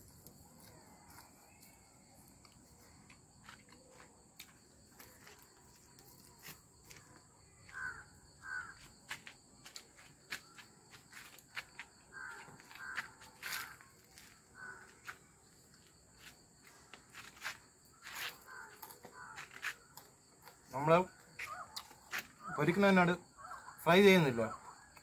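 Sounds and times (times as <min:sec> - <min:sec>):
night insects chirring: 0:00.0 - 0:25.0
person chewing and smacking: 0:18.6 - 0:20.7.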